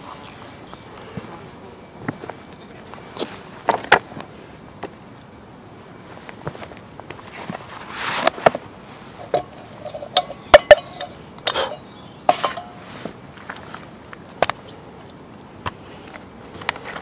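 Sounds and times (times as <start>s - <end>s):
metal cookware clinking: 9.2s - 12.8s.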